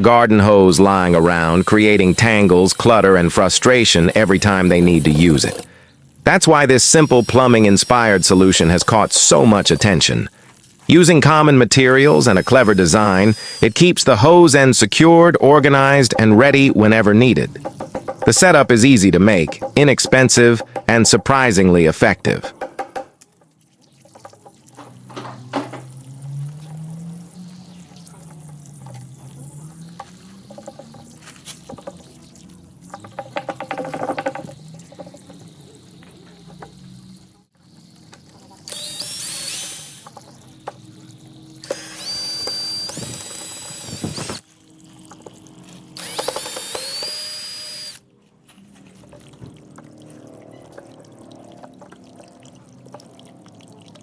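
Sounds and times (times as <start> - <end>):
power drill motor whine: 6.9 - 10.3, 11.9 - 13.9, 38.6 - 44.4, 46.0 - 48.0.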